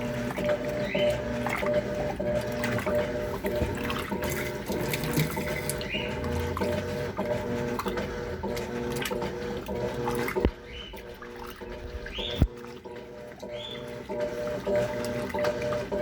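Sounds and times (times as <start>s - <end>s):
washing machine motor hum: 0.0s - 16.0s
water sloshing in tub: 0.0s - 16.0s.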